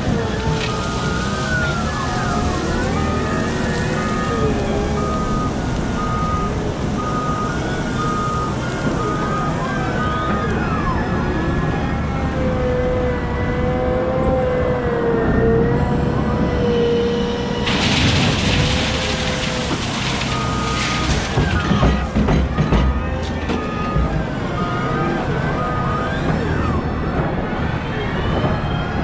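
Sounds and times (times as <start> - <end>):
diesel engine rumbling under load: 0.0 - 29.0
reversing beeps: 0.6 - 10.9, 20.1 - 26.8.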